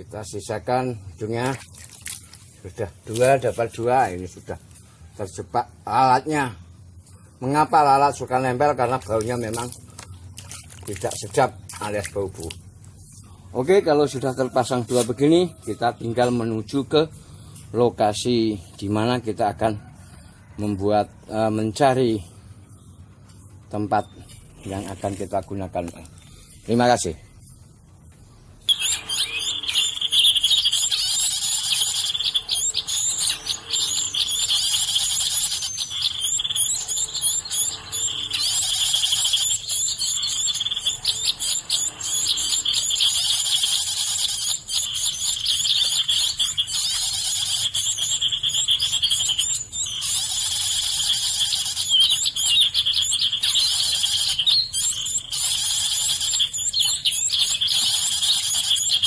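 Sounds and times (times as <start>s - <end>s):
many birds chirping: 28.7s - 59.0s.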